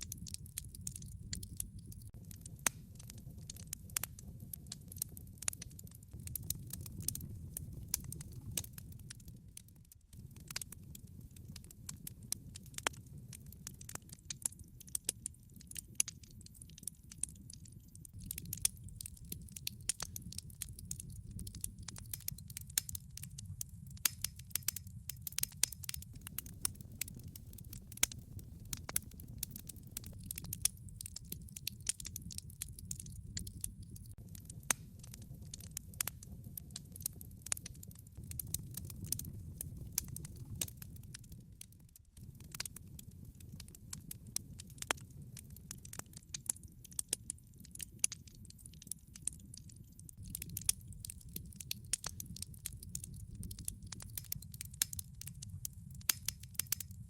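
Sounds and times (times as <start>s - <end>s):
log fire crackling and popping: 0.0s - 57.0s
low rumble of flames: 0.0s - 57.0s.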